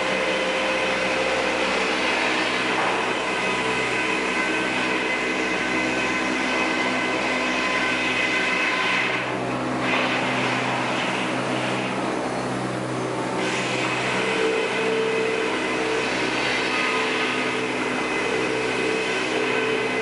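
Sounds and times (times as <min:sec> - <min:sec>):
sawmill machinery drone: 0:00.0 - 0:20.0.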